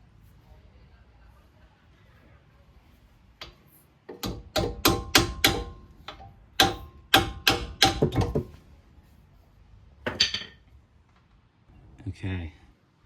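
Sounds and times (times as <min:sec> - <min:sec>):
hammer striking metal: 0:04.2 - 0:08.4.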